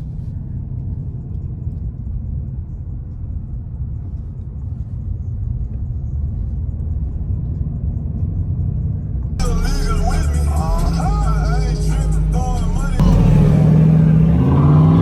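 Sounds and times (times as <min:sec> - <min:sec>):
car engine low rumble: 0:00.0 - 0:15.0
road noise: 0:00.0 - 0:15.0.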